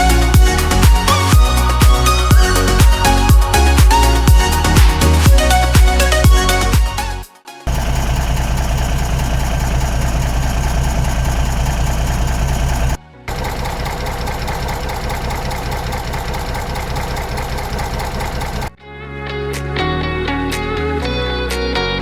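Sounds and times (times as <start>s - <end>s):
bulldozer diesel engine running: 7.7s - 18.7s.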